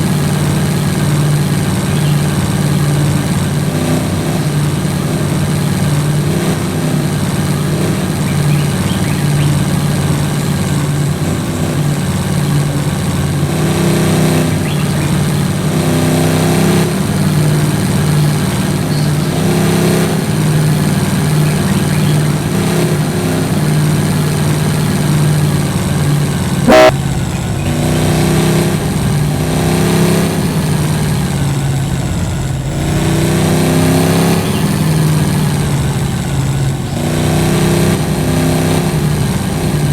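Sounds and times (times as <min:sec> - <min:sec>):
vehicle engine revving: 0:00.0 - 0:39.9
short horn toot: 0:26.6 - 0:27.0.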